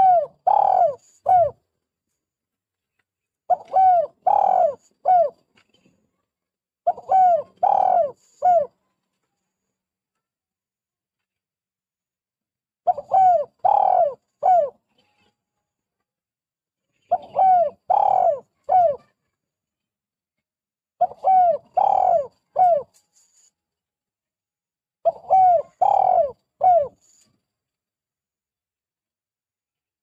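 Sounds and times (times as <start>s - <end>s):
dove cooing: 0.0s - 1.6s, 3.5s - 5.4s, 6.9s - 8.7s, 12.9s - 14.8s, 17.0s - 19.1s, 21.0s - 22.9s, 25.0s - 27.1s.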